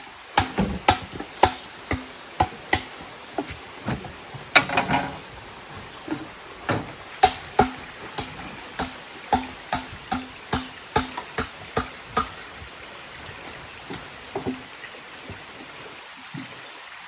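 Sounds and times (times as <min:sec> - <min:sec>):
tool striking wood: 0:00.4 - 0:05.3, 0:06.1 - 0:12.8.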